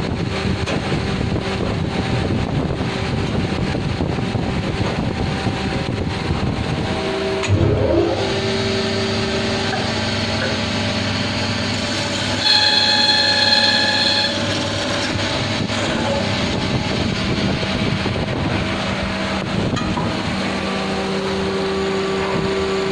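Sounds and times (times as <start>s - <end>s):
machine mechanical hum: 0.0s - 22.9s
high ringing tone: 12.4s - 14.5s.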